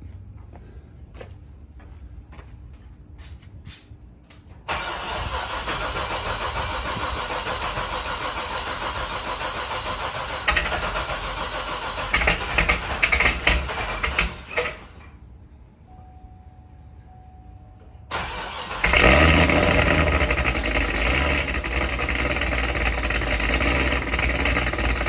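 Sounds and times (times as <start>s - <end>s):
starter motor cranking: 4.7s - 15.0s, 18.1s - 25.0s
engine uneven firings: 4.7s - 15.2s, 18.1s - 25.0s.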